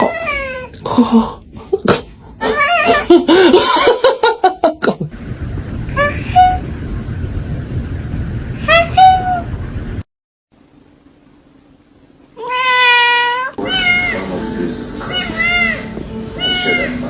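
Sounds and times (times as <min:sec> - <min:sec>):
cat meow: 0:00.0 - 0:00.7, 0:02.4 - 0:03.1, 0:12.4 - 0:14.3, 0:15.1 - 0:17.0.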